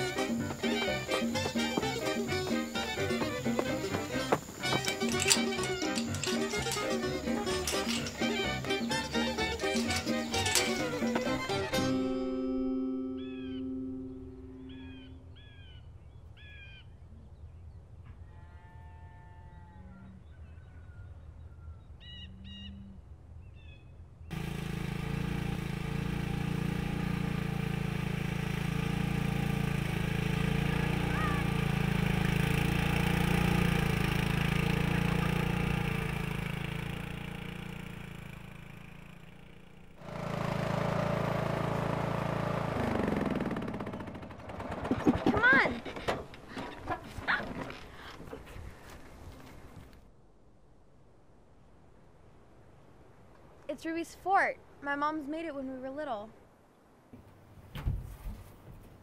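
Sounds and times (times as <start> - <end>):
bird chirps: 13.0 - 17.7.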